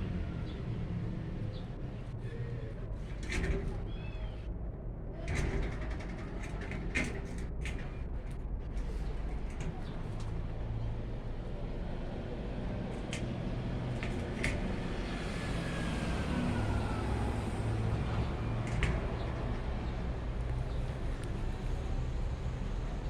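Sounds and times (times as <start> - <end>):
steady low rumble: 0.0 - 15.8.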